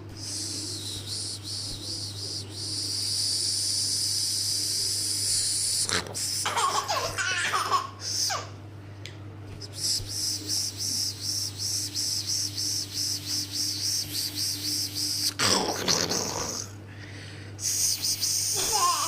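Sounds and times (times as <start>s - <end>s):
steady high hiss: 0.0s - 6.5s, 9.6s - 15.4s
baby laughing: 6.0s - 8.5s, 18.5s - 19.0s.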